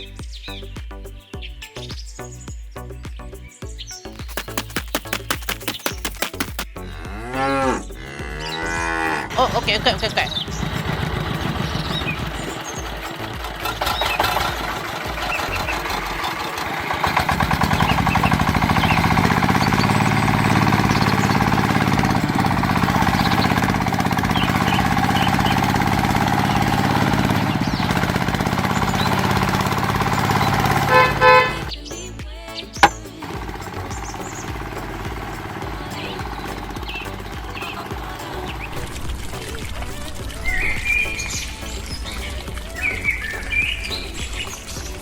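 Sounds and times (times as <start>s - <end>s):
vehicle engine running: 4.1s - 45.0s
short horn toots: 30.8s - 31.7s.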